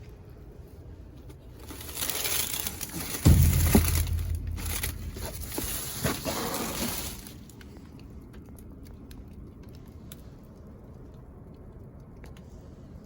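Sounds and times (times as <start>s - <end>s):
trash rustling and crunching: 1.1s - 7.6s
heavy thump: 3.1s - 6.5s.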